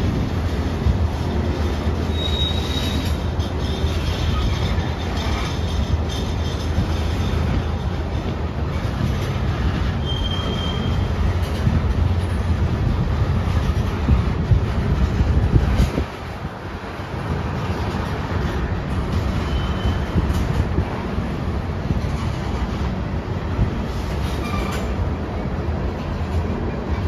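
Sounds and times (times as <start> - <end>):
train wheels rumbling on rail: 0.0 - 27.0
high-pitched wheel squeals: 2.1 - 7.5, 9.9 - 11.1, 19.4 - 20.2.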